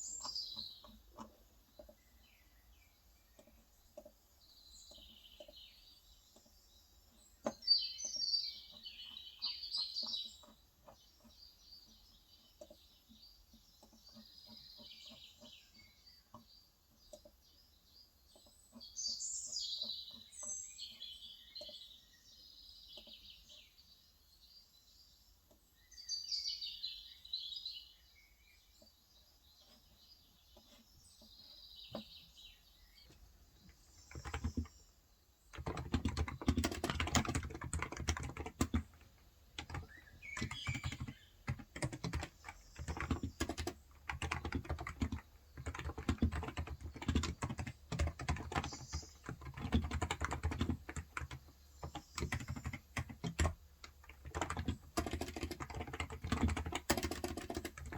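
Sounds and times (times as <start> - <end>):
birds chirping: 0.0 - 57.9
fast typing on keyboard: 33.1 - 34.9, 35.5 - 57.9.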